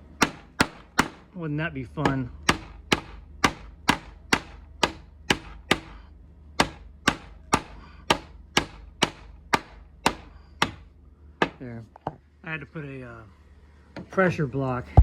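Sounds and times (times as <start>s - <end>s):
hammer striking wooden block: 0.2s - 1.2s, 2.0s - 6.0s, 6.6s - 12.2s.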